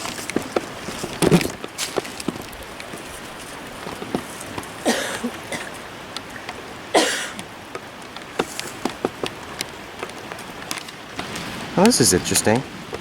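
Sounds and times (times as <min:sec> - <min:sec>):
footsteps on forest floor: 0:00.0 - 0:04.9, 0:08.4 - 0:11.0
creek rushing: 0:00.0 - 0:13.0.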